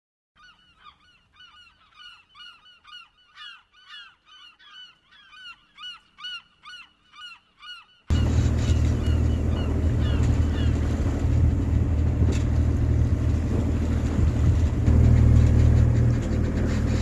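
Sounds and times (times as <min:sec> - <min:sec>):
geese honking: 0:08.1 - 0:17.0.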